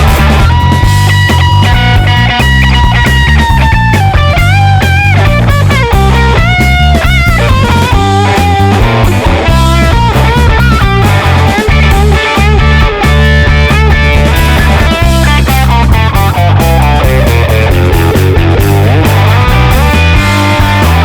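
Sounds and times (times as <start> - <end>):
lead guitar bending melody: 0.0 - 21.0
rock music: 0.0 - 21.0.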